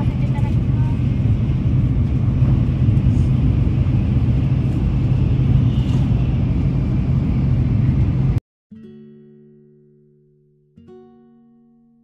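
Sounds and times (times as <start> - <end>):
train rumble inside passenger car: 0.0 - 8.4.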